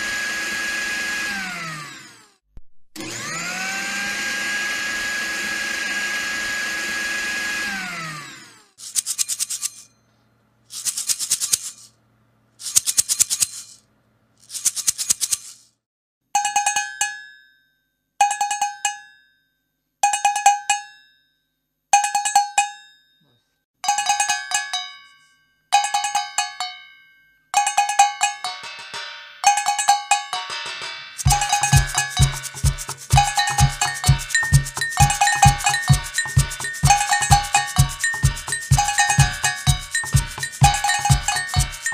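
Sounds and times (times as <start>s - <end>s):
ringing metallic strikes: 25.8s - 41.9s
kitchen utensils rattling: 31.2s - 41.9s.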